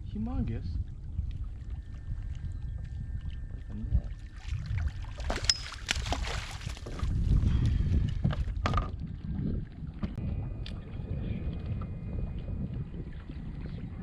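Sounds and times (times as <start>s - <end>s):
wind rumble on microphone: 0.0s - 14.0s
water splashing: 3.2s - 7.3s.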